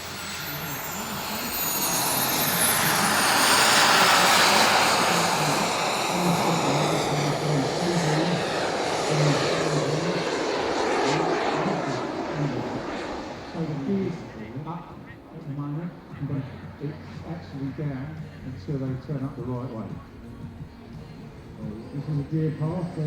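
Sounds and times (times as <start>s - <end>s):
jet turbine whistle: 0.0s - 17.9s.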